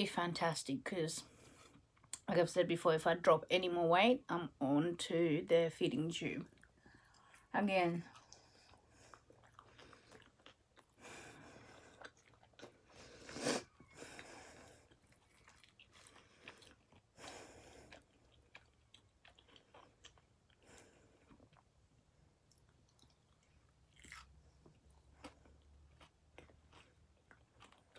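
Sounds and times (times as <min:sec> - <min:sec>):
person chewing crunchy food: 0:06.5 - 0:27.9.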